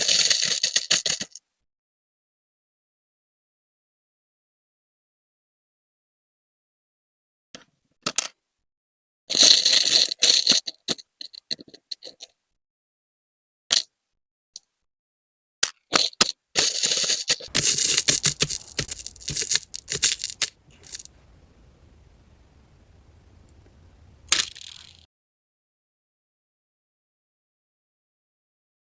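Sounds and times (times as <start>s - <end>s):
stone beads clicking and rattling: 17.6s - 21.1s.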